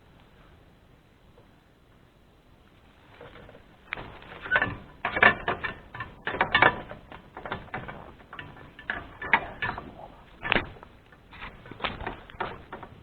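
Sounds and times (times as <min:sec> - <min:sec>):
clicks knocks and rattles: 0:03.2 - 0:13.0.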